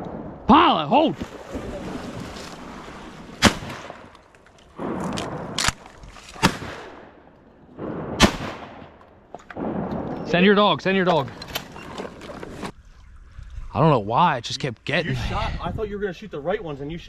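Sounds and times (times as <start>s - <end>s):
shotgun shots: 3.4s - 4.1s, 4.8s - 7.2s, 7.8s - 9.0s.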